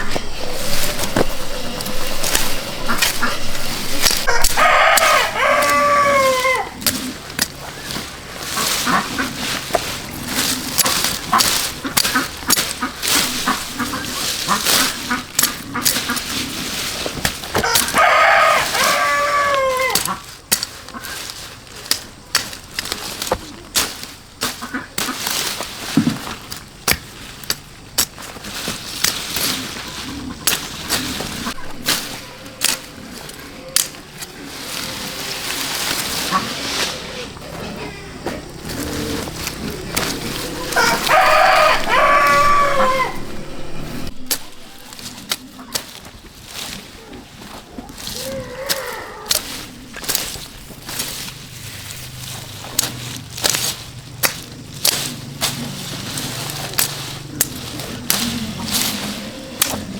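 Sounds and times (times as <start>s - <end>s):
rooster crowing: 0.0s - 6.8s, 17.6s - 20.1s, 31.4s - 32.6s, 38.5s - 45.0s.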